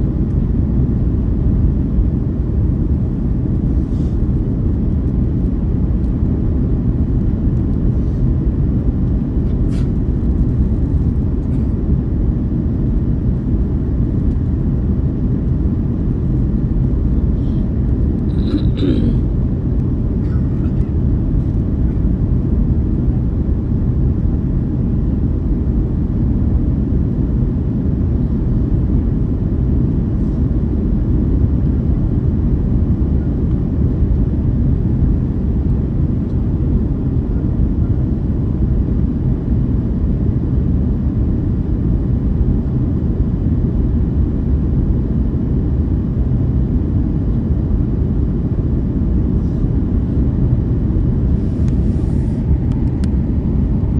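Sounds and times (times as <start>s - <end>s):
airliner engine rumble: 0.0s - 53.9s.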